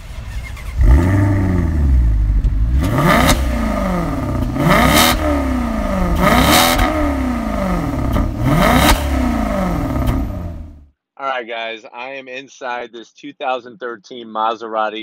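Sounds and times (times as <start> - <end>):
car engine revving: 0.0 - 10.9.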